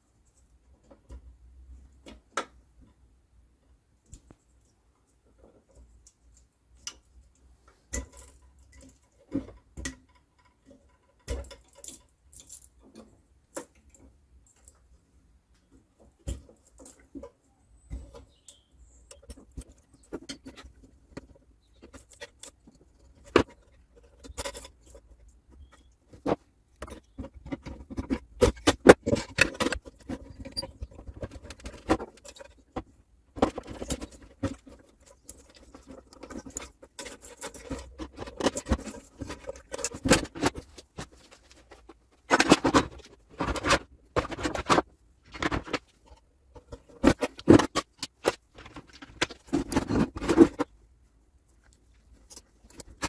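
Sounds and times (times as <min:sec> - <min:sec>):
tools clicking and scraping metal: 0:18.0 - 0:50.7.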